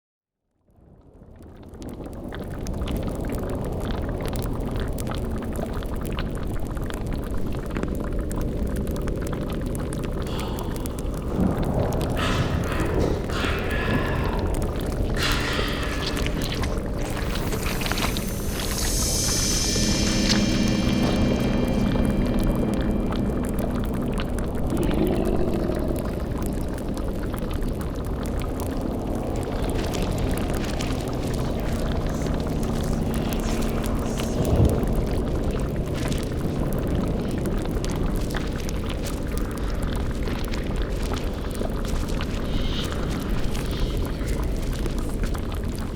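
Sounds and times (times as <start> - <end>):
cauldron bubbling: 1.4 - 45.9
fire crackling: 1.6 - 45.9
deep low rumble: 3.7 - 45.9
low moaning swell: 10.1 - 37.6, 42.0 - 45.3.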